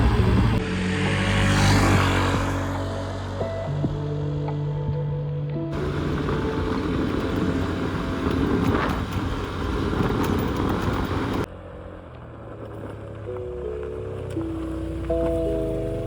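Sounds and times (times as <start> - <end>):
moped engine running: 0.0 - 3.6, 5.8 - 11.5.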